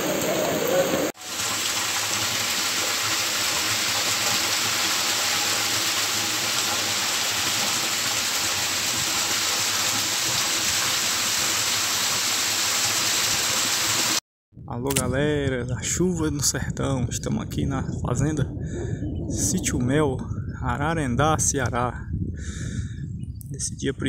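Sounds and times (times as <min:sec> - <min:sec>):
heavy rain falling: 0:00.0 - 0:14.2
runoff pouring off roof: 0:00.0 - 0:14.2.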